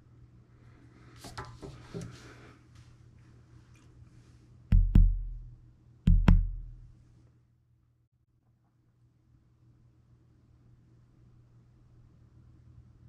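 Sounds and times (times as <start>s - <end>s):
deep heavy thumps: 4.7s - 6.9s.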